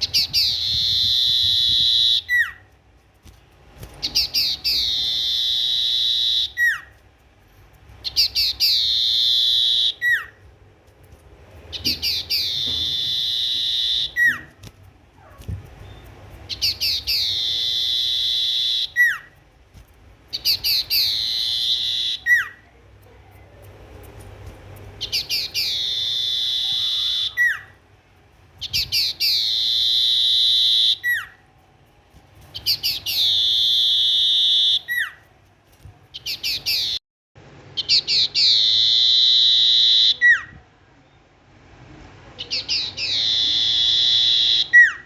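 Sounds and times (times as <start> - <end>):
songbird singing buzzy phrases: 0.0 - 2.7, 3.6 - 7.0, 7.9 - 10.5, 11.6 - 14.6, 15.4 - 19.4, 20.3 - 27.8, 28.6 - 31.4, 32.5 - 35.2, 36.1 - 37.0, 42.4 - 45.0.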